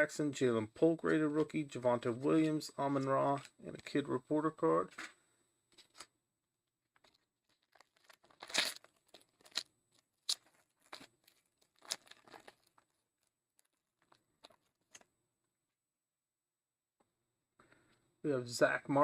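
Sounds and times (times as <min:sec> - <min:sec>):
foil wrapper tearing and crinkling: 0:07.0 - 0:13.0.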